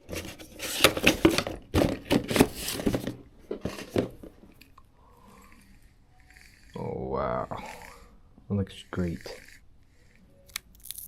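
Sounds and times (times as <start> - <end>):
packaging crinkling and tearing: 10.5 - 11.0.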